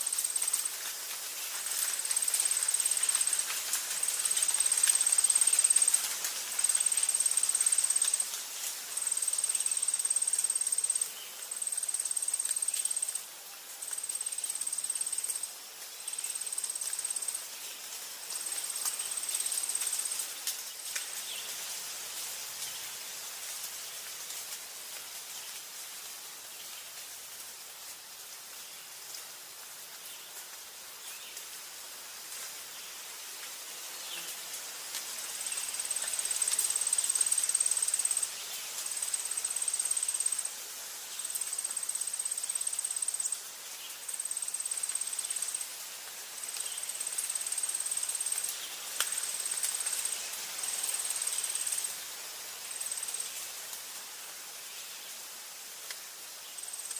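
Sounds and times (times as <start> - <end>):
insect trilling: 0.0 - 0.8, 1.8 - 8.4, 9.0 - 13.2, 13.8 - 15.5, 16.1 - 17.4, 35.4 - 40.6, 41.2 - 43.4, 44.1 - 45.7, 46.6 - 52.0, 56.6 - 56.9
faint forest background hiss: 0.0 - 56.9.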